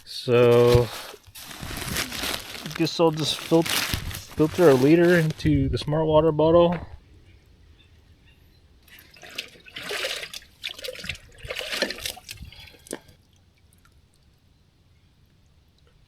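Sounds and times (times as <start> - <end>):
water sloshing into container: 8.8 - 14.4.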